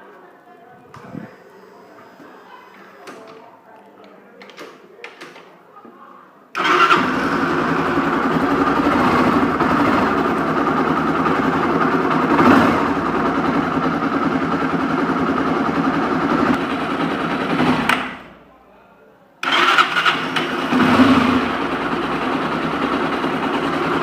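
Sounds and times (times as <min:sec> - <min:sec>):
motorcycle engine running: 0:06.6 - 0:18.3, 0:19.5 - 0:24.0.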